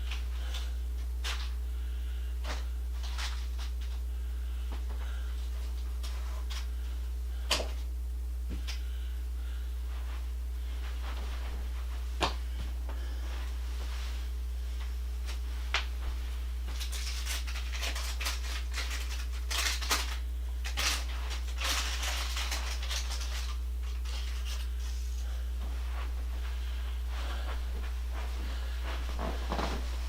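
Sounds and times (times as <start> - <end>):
steady low hum: 0.0 - 30.0
rustling and scraping: 27.2 - 30.0.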